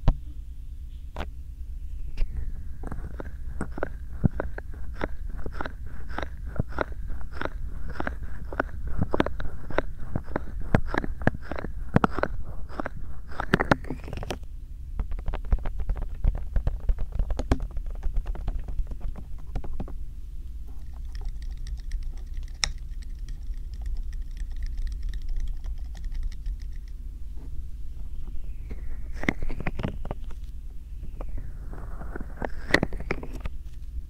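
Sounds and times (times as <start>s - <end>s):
hands tapping and rubbing microphone: 2.8s - 14.4s, 15.0s - 20.0s
low handling rumble: 23.7s - 34.0s.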